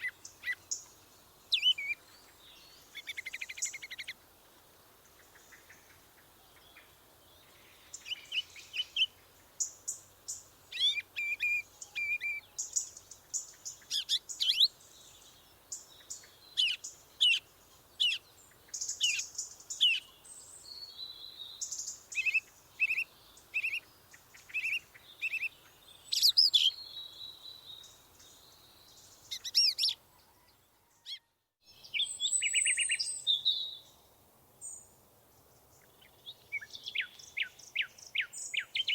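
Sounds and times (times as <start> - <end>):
birds chirping and trilling: 6.6 - 34.0, 34.6 - 38.9.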